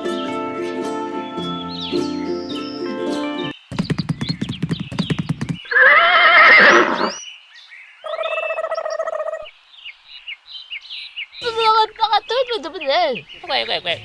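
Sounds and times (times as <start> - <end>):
hoofbeats clip-clopping: 3.7 - 6.0
horse neighing: 5.7 - 7.2.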